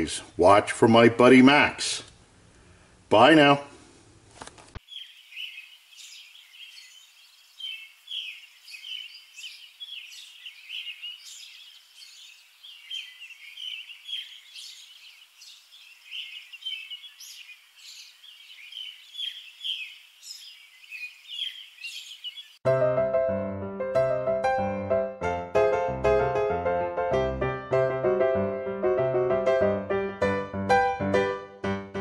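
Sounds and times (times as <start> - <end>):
small birds chirping: 4.8 - 22.6.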